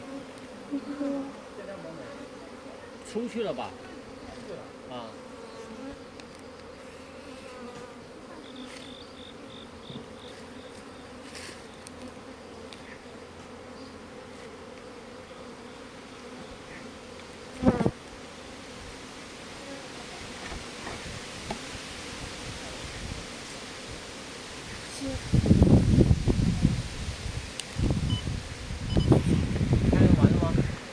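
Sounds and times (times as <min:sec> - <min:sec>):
bees buzzing: 0:00.0 - 0:30.9.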